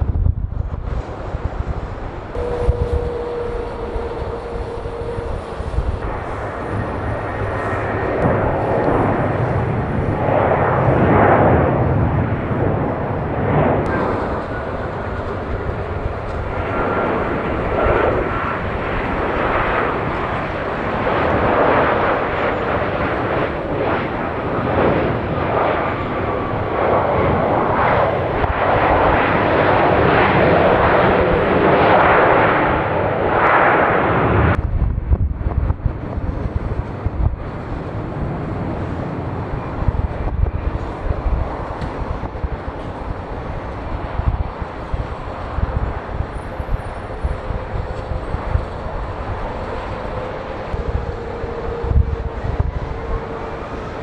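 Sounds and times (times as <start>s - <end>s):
jet engines roaring: 0.4s - 54.0s.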